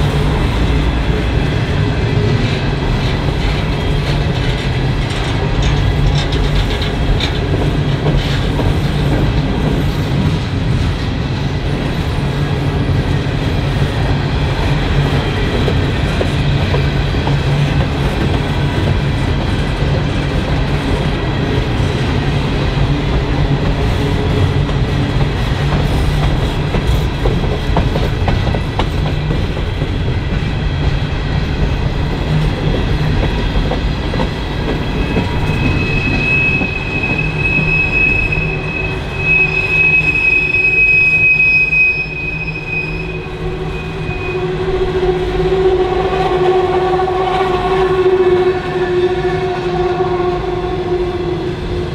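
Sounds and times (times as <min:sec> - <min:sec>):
train cars rumbling past: 0:00.0 - 0:51.9
wheels clicking over rail joints: 0:02.5 - 0:10.4
high-pitched wheel squeal: 0:34.9 - 0:45.2.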